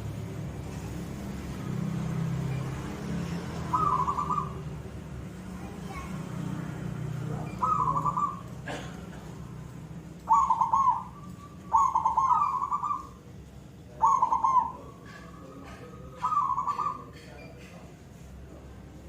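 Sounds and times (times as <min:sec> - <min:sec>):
dove cooing: 0:03.6 - 0:04.9, 0:07.4 - 0:08.9, 0:10.2 - 0:13.2, 0:14.0 - 0:17.6.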